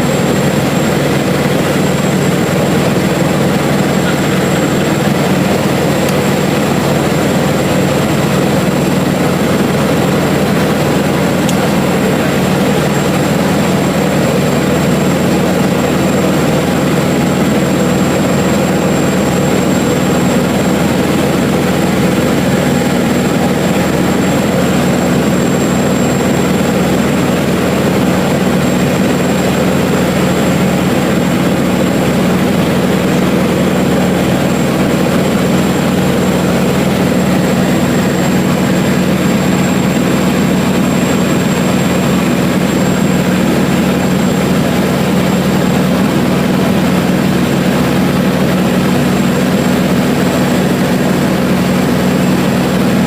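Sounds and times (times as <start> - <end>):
propeller plane engine drone: 0.0 - 53.0.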